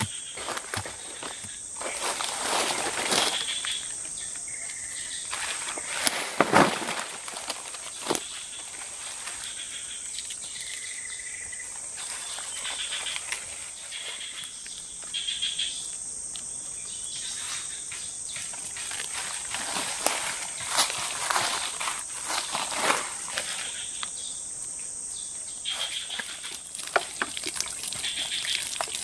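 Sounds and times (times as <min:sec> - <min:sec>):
insect chirping calls: 0:00.0 - 0:29.0
insects droning: 0:00.0 - 0:29.0
knocks and rustles: 0:05.3 - 0:08.3.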